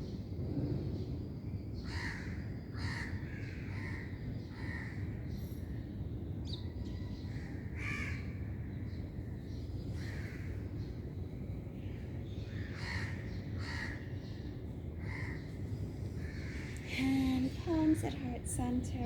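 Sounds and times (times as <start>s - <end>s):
low background hum: 0.0s - 19.0s
crows cawing: 1.9s - 5.0s, 7.4s - 8.3s, 10.0s - 10.6s, 12.6s - 14.1s, 15.0s - 15.4s, 16.2s - 16.8s.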